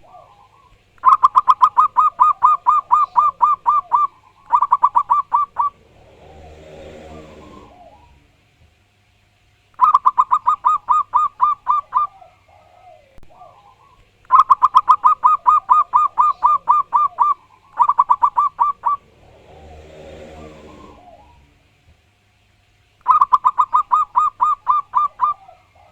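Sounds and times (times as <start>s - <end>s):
dove cooing staccato notes: 0.0s - 8.5s, 9.8s - 21.9s, 23.0s - 25.9s
fainter lower bird calls: 0.0s - 8.5s, 9.4s - 25.9s
low droning: 3.0s - 8.6s, 17.8s - 22.0s.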